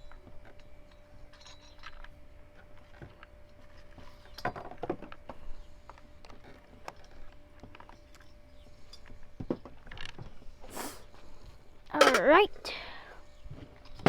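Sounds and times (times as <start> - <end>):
faint steady hum: 0.0 - 14.0
small tools and screws clinking: 0.9 - 2.1, 12.0 - 12.4.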